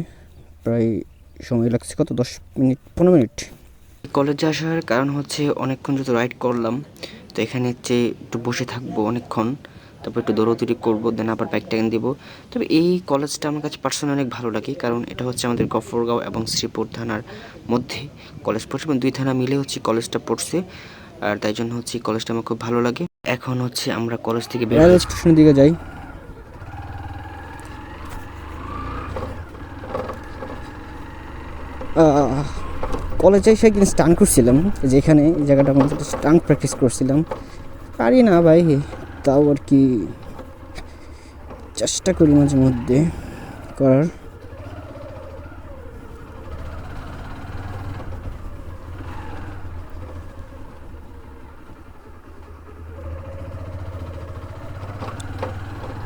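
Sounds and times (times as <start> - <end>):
motorcycle engine riding off: 0.0 - 4.6, 24.4 - 56.0.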